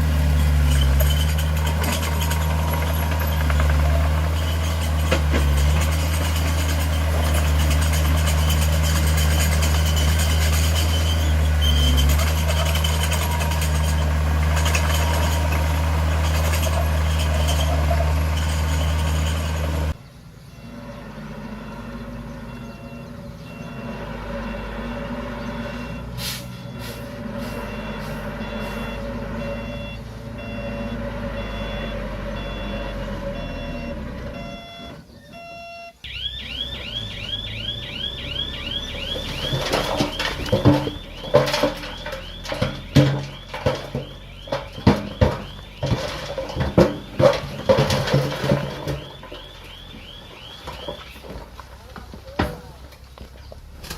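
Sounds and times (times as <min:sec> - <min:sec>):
heavy diesel machinery running: 0:00.0 - 0:34.5, 0:36.5 - 0:53.1
truck engine: 0:00.0 - 0:53.9
reversing beeper: 0:00.2 - 0:51.5
short air hisses: 0:26.2 - 0:28.8.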